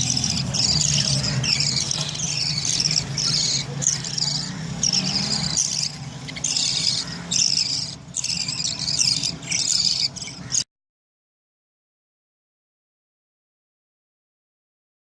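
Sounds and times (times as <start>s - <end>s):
budgerigars chattering and chirping: 0.0s - 10.6s.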